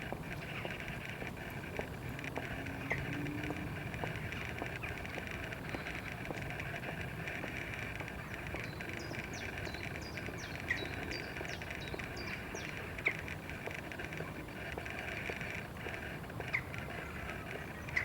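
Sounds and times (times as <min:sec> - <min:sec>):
small birds chirping: 0:06.9 - 0:18.0.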